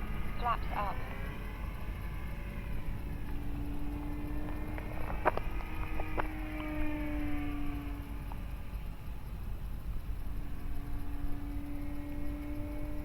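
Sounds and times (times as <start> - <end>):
model plane motor humming: 0.0 - 13.0.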